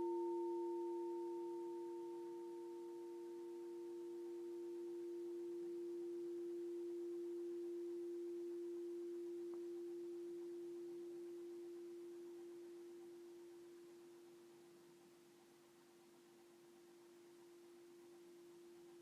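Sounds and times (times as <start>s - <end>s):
singing bowl tone: 0.0s - 15.0s.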